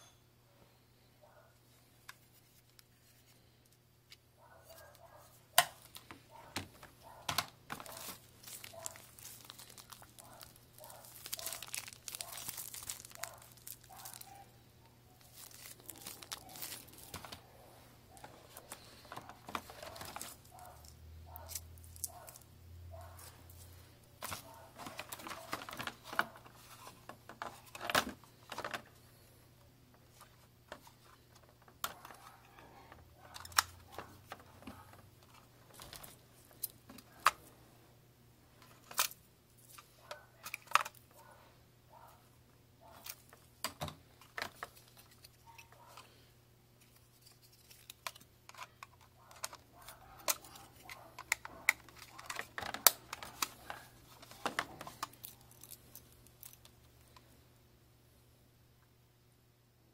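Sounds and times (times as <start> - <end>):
faint steady hum: 0.0 - 59.9
packaging rustling: 4.7 - 29.0, 30.1 - 37.5, 42.8 - 46.2, 46.8 - 56.8
plastic parts clicking: 4.8 - 14.5, 15.2 - 17.4, 18.1 - 22.4, 24.2 - 28.9, 30.7 - 37.5, 38.6 - 41.1, 46.8 - 57.3.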